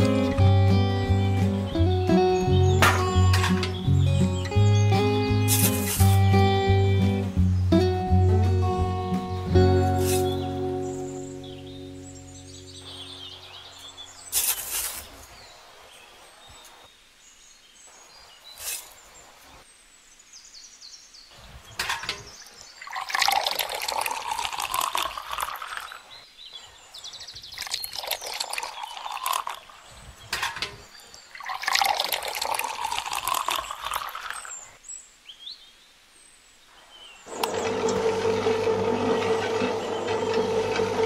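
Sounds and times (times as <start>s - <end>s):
water pouring into mixer drum: 22.8s - 26.0s, 27.6s - 29.7s, 31.4s - 34.5s, 37.3s - 41.0s.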